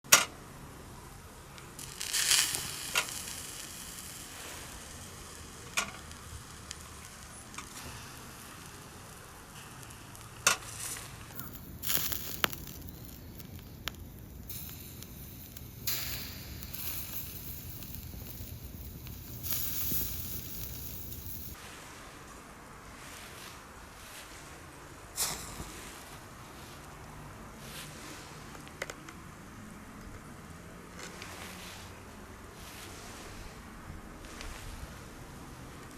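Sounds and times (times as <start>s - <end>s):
meat sizzling on charcoal grill: 1.7s - 21.6s.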